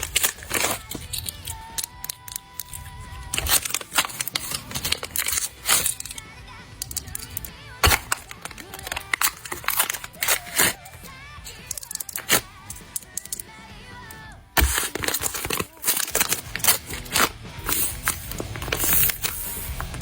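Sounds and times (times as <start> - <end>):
paper crinkling and tearing: 0.0 - 6.2, 6.8 - 13.4, 14.6 - 20.0
faint music: 0.0 - 20.0.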